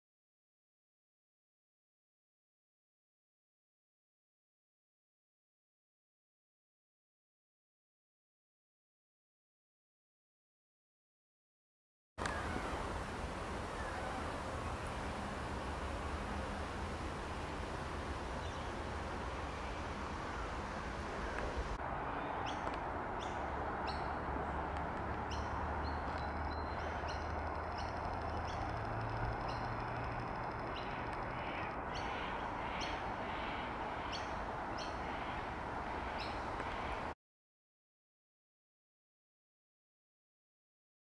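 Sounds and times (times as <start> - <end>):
small birds chirping: 13.6 - 37.1.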